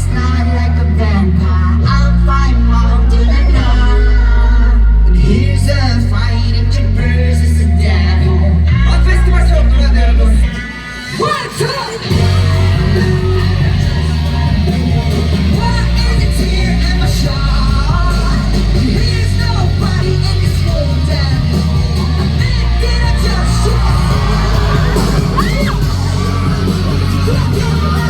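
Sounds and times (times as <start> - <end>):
heavy bass: 0.0 - 10.9, 12.0 - 28.0
live band music over pa: 0.0 - 28.0
shouted vocals: 7.9 - 28.0.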